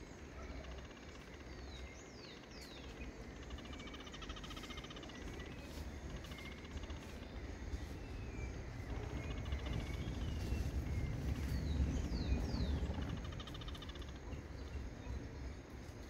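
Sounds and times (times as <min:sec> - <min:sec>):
low rumble: 0:06.8 - 0:15.4.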